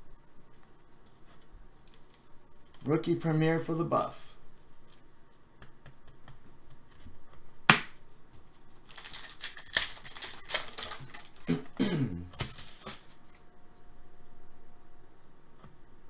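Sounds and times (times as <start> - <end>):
card packaging snapping: 7.7 - 8.0, 8.8 - 13.4
packaging crinkling and sliding: 8.7 - 13.4.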